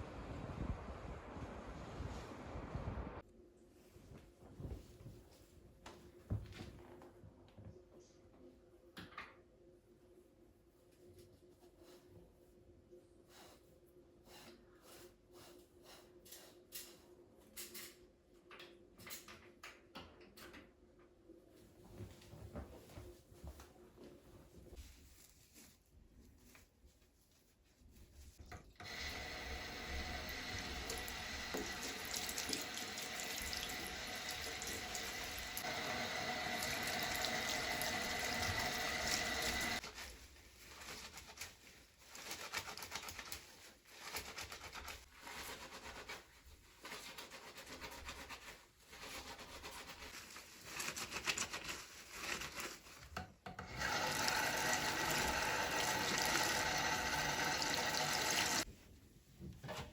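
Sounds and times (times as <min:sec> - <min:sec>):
tap water running into sink: 0:28.5 - 0:39.8, 0:53.6 - 0:58.6.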